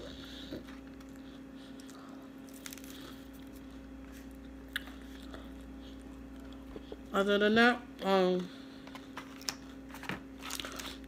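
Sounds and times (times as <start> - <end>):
faint chewing: 0.0 - 7.0.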